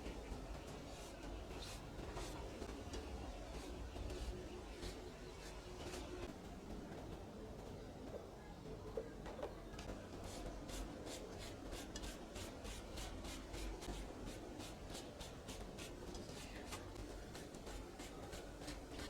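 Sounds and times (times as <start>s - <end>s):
scraping strokes on a surface: 0.2s - 6.3s, 10.2s - 19.0s.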